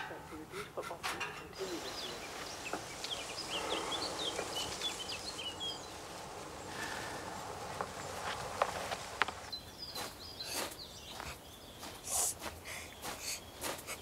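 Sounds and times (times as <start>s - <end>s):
outdoor background hush: 0.0s - 14.0s
small birds chirping: 0.0s - 14.0s.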